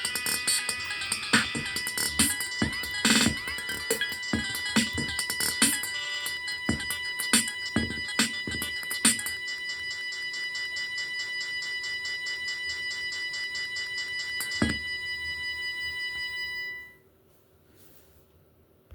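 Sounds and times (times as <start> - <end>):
pulsing high electronic tone: 0.0 - 16.9.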